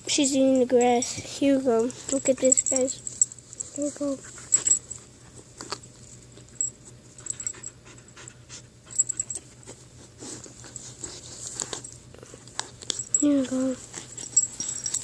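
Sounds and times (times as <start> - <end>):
dog panting: 7.1 - 15.0.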